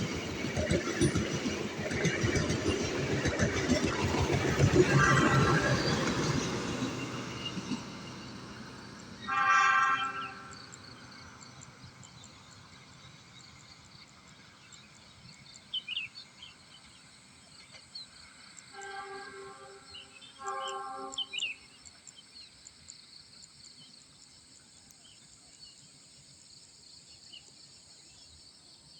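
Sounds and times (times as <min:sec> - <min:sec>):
train rumble: 0:00.0 - 0:22.6
short horn toots: 0:09.3 - 0:10.6, 0:18.8 - 0:21.4.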